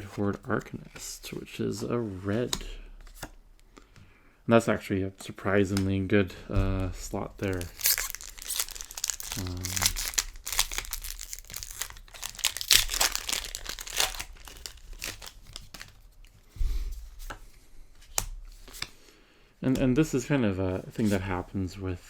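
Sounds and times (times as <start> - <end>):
foil wrapper tearing and crinkling: 7.4 - 16.0.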